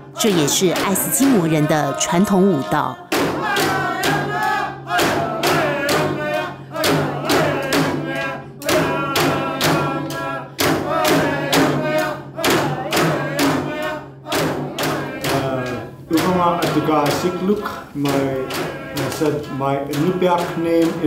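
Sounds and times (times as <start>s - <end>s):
voices chanting: 0.0s - 21.0s
frame drum strokes: 2.6s - 21.0s.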